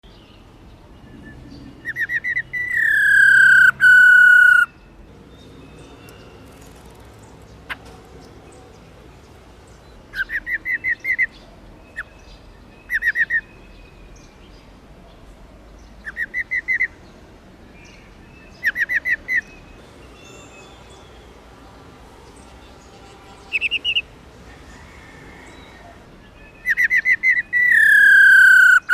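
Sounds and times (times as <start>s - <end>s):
bird rolling trill call: 2.6s - 4.7s, 26.8s - 28.9s.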